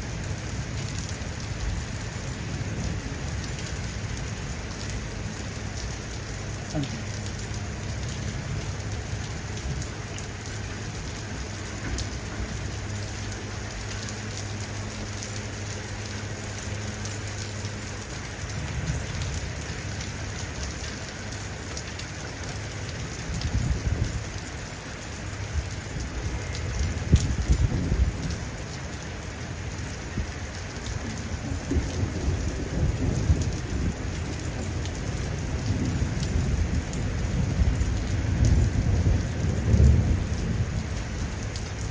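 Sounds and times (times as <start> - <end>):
heavy rain falling: 0.0 - 41.9
rolling thunder: 26.0 - 28.6, 31.1 - 41.9.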